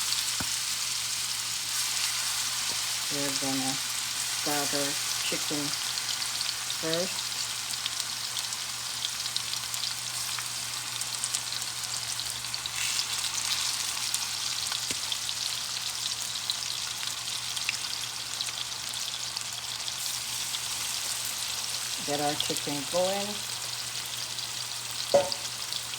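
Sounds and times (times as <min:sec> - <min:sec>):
chicken sizzling in a hot pan: 0:00.0 - 0:25.9.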